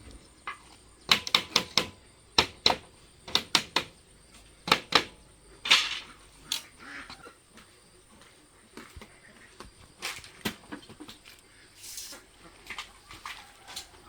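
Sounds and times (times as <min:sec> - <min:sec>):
sharp knocks: 0:00.5 - 0:04.0, 0:04.7 - 0:06.1
scraping rustle: 0:11.0 - 0:14.0.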